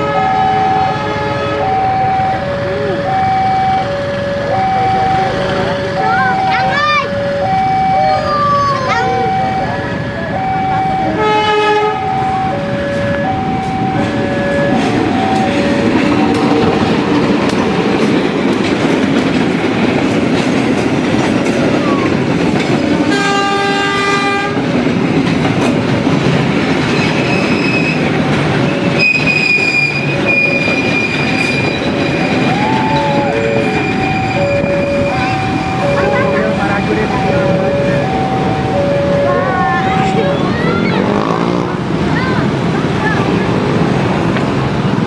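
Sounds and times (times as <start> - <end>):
train horn: 0.0 - 1.9, 11.1 - 13.1, 23.1 - 24.7
two-tone level-crossing alarm: 0.0 - 16.9, 28.9 - 40.6
train wheels clattering on rails: 12.3 - 37.6, 40.0 - 45.0.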